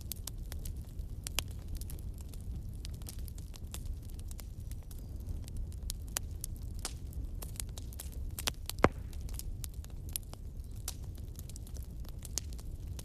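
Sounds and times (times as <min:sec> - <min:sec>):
wood fire crackling: 0:00.0 - 0:13.0
fire pop: 0:05.8 - 0:13.0.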